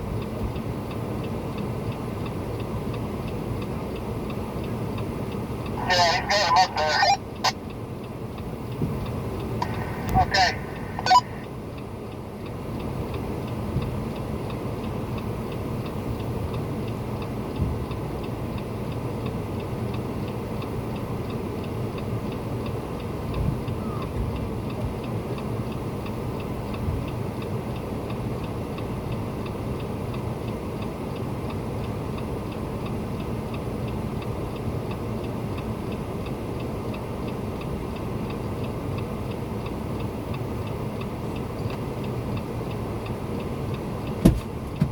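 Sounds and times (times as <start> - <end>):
faint regular ticking: 0.2 - 23.8.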